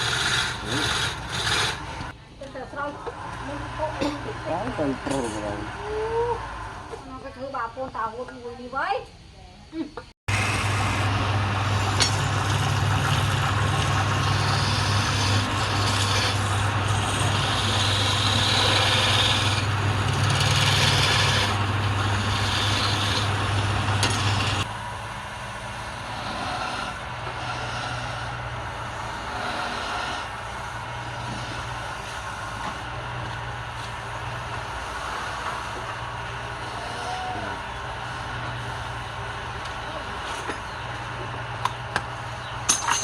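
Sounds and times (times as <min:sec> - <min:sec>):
lathe motor hum: 0:00.0 - 0:02.2, 0:03.1 - 0:07.0, 0:10.3 - 0:42.6
tool scraping spinning wood: 0:00.0 - 0:02.2, 0:10.3 - 0:24.7, 0:25.9 - 0:43.0.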